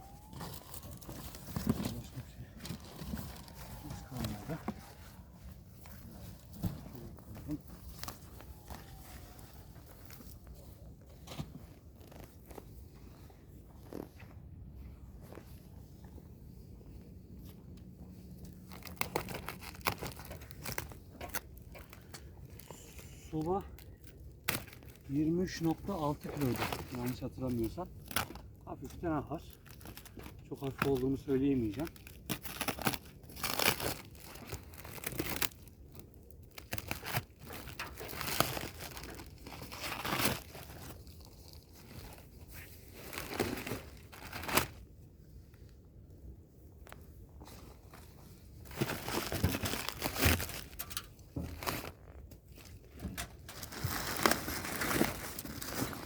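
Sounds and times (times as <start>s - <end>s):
packing material tearing and crumpling: 0.0s - 10.6s, 18.5s - 44.8s, 48.6s - 56.0s.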